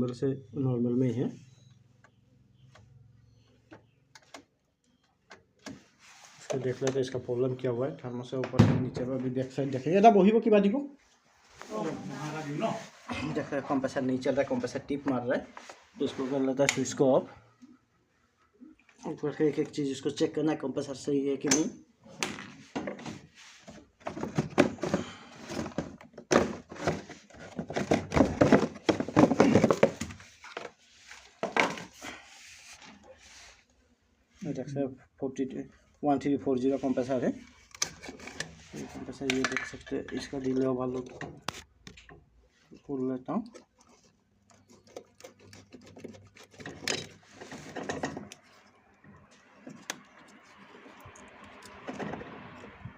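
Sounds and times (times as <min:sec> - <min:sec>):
refrigerator knocking and rattling: 0:08.5 - 0:09.1, 0:24.0 - 0:30.2
clicks and scraping of parts: 0:21.5 - 0:32.0, 0:37.4 - 0:42.8, 0:43.4 - 0:52.8
rubbing and rattling: 0:22.5 - 0:32.0, 0:43.6 - 0:48.6.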